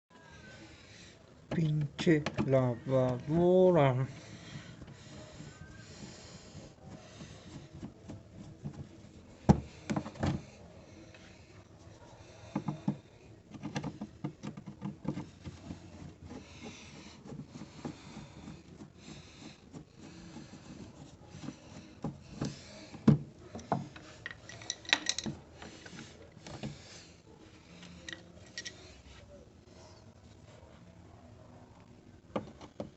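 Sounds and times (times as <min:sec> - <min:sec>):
handling knocks and clicks: 0:01.5 - 0:03.3, 0:07.2 - 0:10.6, 0:12.4 - 0:18.8, 0:20.6 - 0:26.8, 0:32.2 - 0:32.9.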